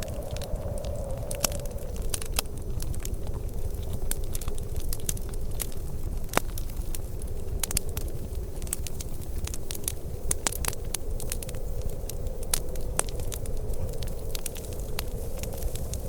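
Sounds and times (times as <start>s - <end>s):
steady low rumble: 0.0s - 16.0s
wood fire crackling: 0.0s - 16.0s.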